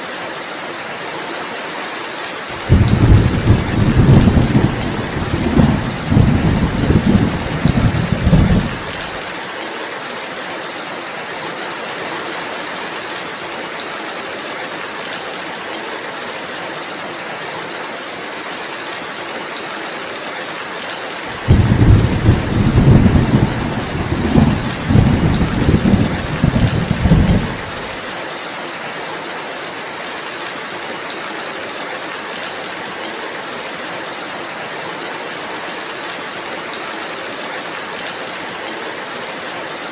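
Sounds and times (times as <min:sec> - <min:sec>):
steady rainfall: 0:00.0 - 0:39.9
low thunder rumbling: 0:02.6 - 0:09.2, 0:21.4 - 0:28.0.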